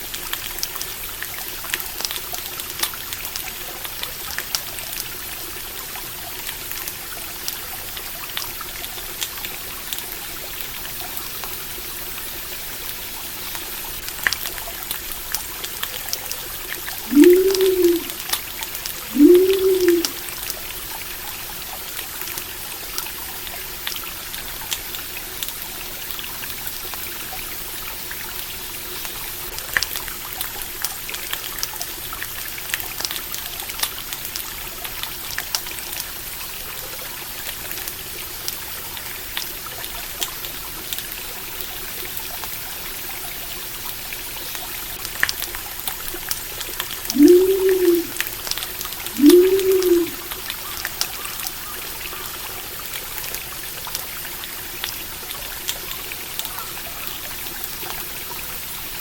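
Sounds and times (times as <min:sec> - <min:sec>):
stream water flowing: 0:00.0 - 0:59.0
short low call: 0:47.1 - 0:48.2.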